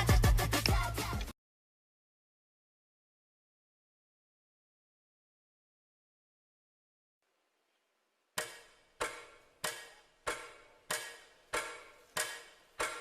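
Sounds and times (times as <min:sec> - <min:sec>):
clock ticking: 0:08.4 - 0:13.0.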